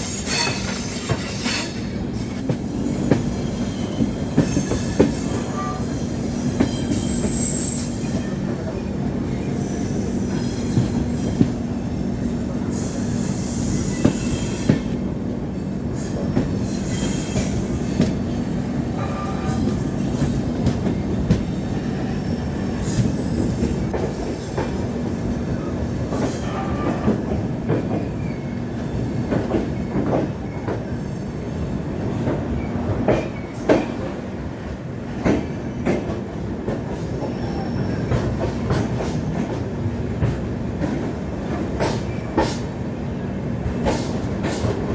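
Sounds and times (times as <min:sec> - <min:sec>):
high wheel squeals: 0:00.0 - 0:08.5
train rumbling on track: 0:00.0 - 0:44.9.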